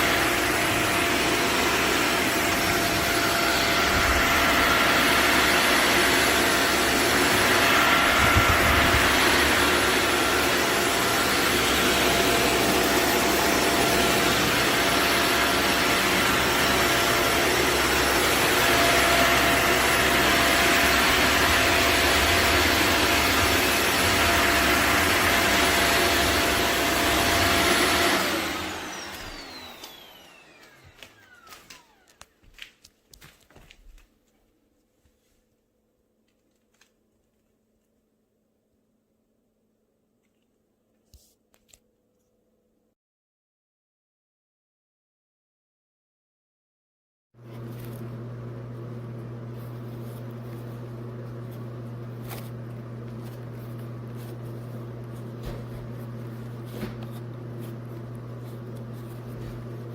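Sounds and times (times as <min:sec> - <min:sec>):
vacuum cleaner whining: 0:00.0 - 0:32.8, 0:47.4 - 0:59.9.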